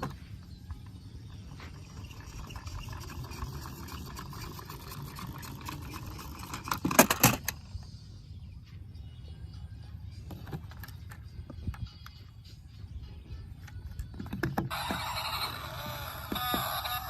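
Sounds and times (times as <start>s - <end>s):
plastic toys rattling and clicking: 1.6s - 7.6s
low steady rumble: 7.4s - 16.4s.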